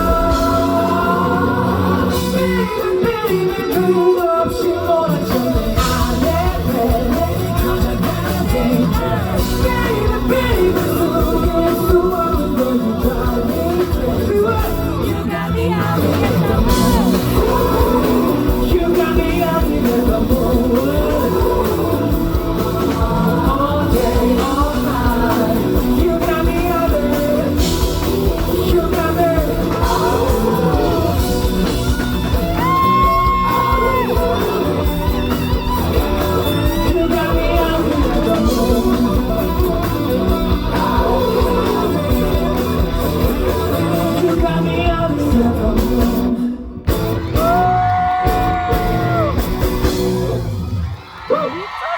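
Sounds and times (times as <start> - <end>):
man singing: 0.0 - 49.3
loud full band playing: 0.0 - 51.9.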